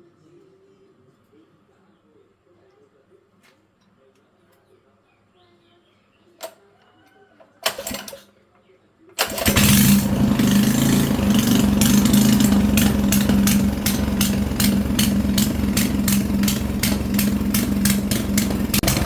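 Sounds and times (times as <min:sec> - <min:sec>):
engine running with ticking: 0:09.3 - 0:19.0.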